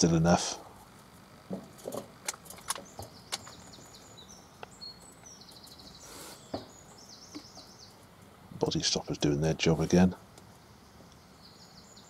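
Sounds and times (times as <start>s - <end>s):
bird singing down-slurred notes: 2.7s - 8.0s.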